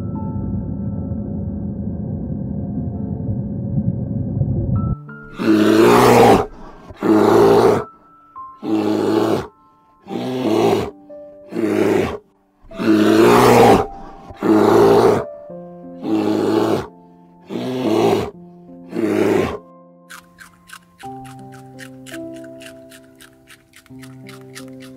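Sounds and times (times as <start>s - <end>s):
background music with held notes: 0.0s - 24.9s
bear roaring growls: 5.3s - 7.9s, 8.6s - 9.5s, 10.1s - 15.3s, 16.0s - 16.9s, 17.5s - 18.3s, 18.9s - 19.6s.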